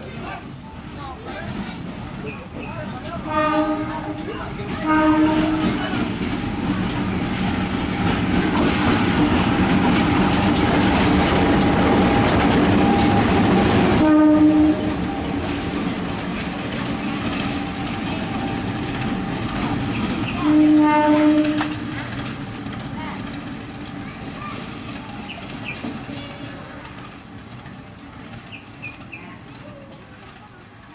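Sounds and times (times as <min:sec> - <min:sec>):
freight train rumble and clatter: 0:00.0 - 0:30.9
locomotive horn blast: 0:03.2 - 0:05.9, 0:13.7 - 0:15.1, 0:20.3 - 0:22.0.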